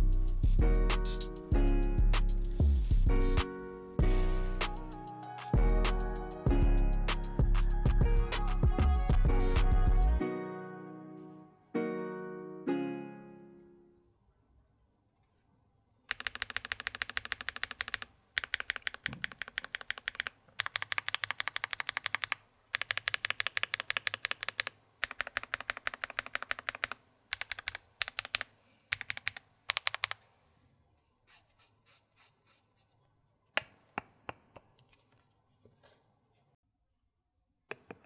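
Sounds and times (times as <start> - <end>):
mechanical keyboard typing: 16.1 - 30.2.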